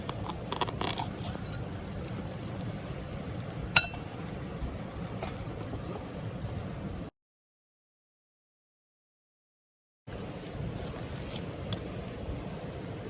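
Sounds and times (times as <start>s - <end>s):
low outdoor rumble: 0.0s - 7.1s, 10.1s - 13.0s
sharp clink: 3.8s - 4.0s.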